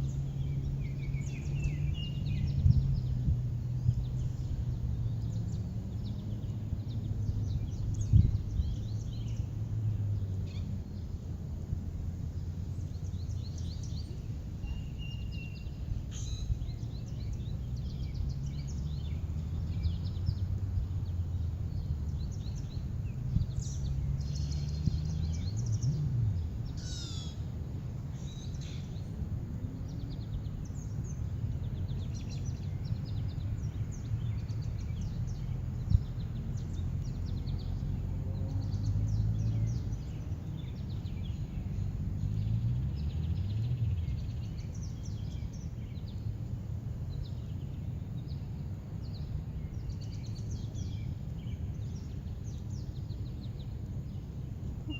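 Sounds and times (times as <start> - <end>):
birds chirping: 0.0 - 3.3, 19.8 - 29.3.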